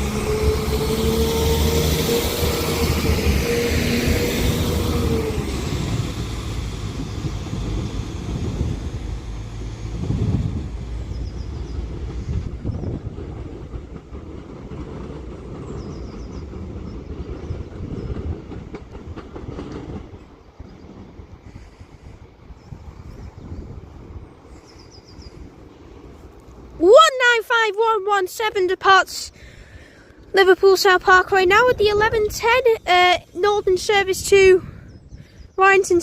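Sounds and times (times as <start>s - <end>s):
whining tone dropping in pitch: 0.0s - 10.5s
wheels clicking over rail joints: 0.0s - 21.3s
diesel train engine and wheels: 0.0s - 36.0s.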